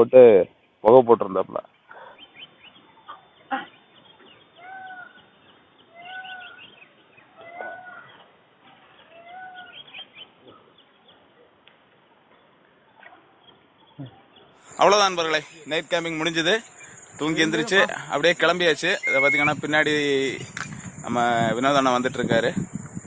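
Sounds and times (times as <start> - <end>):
small birds chirping faintly: 0.0 - 23.0
bird calling arched notes: 1.7 - 8.3, 14.0 - 23.0.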